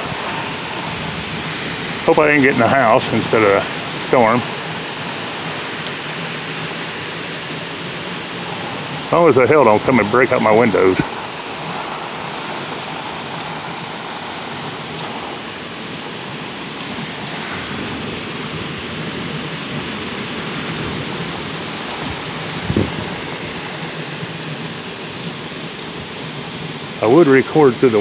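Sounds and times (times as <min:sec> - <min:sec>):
gusting wind: 0:00.0 - 0:28.0
heavy rain pouring: 0:00.0 - 0:28.0.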